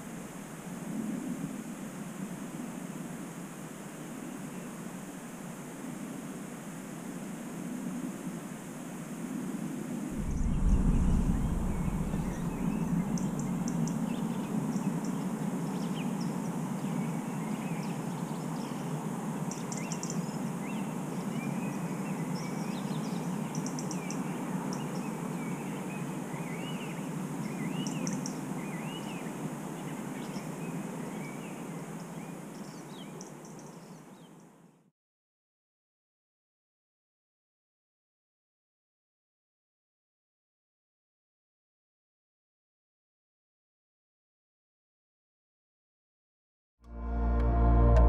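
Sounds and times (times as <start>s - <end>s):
low rushing noise: 10.1s - 15.0s, 46.9s - 48.0s
low thump: 10.2s - 14.0s.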